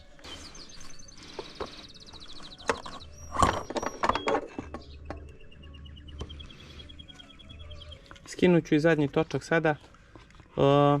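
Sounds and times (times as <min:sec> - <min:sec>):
tools and metal parts clanking: 0:02.5 - 0:05.3.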